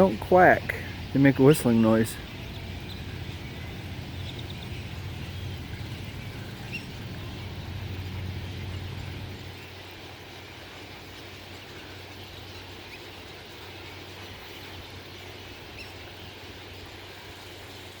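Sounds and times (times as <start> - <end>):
distant traffic hum: 0.0 - 18.0
faint bird chirps: 0.7 - 9.8.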